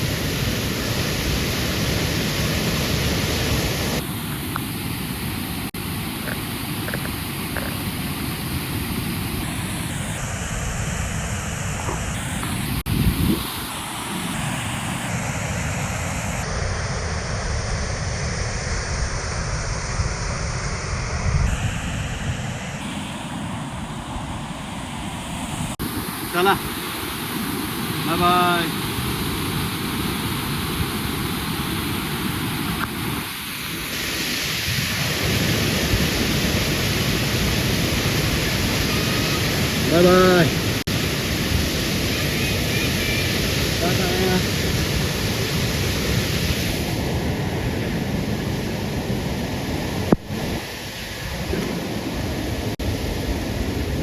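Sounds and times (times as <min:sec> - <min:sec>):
waterfall roaring: 0:00.0 - 0:17.0, 0:22.7 - 0:54.0.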